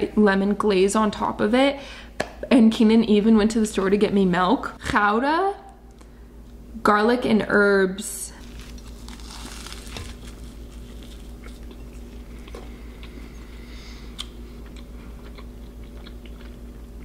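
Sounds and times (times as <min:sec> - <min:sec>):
faint steady hum: 0:00.0 - 0:17.0
crust crackling: 0:08.3 - 0:12.6
person chewing pastry: 0:08.4 - 0:17.0.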